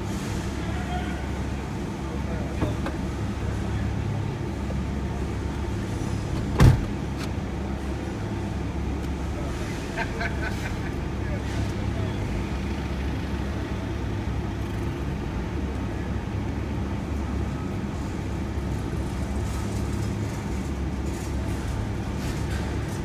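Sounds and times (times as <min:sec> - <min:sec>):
road and engine rumble in van: 0:00.0 - 0:23.0.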